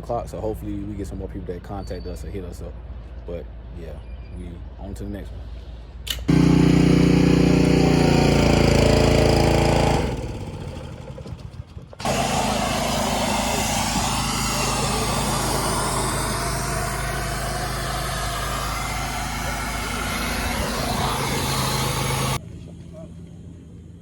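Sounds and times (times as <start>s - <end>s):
road and wind noise: 2.3s - 6.3s, 10.2s - 24.0s
vehicle engine starting: 6.1s - 22.4s
engine hum while driving: 6.3s - 24.0s.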